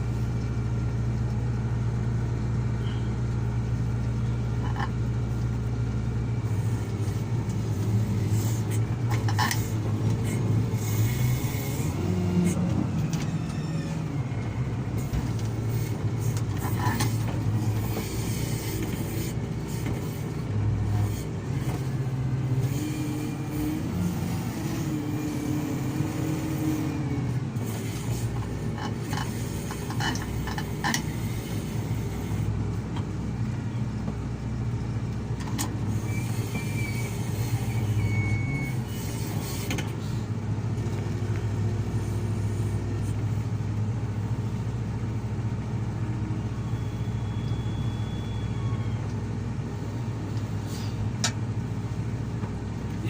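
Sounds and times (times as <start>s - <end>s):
excavator diesel engine running: 0.0s - 53.0s
wavering whine: 46.3s - 49.1s.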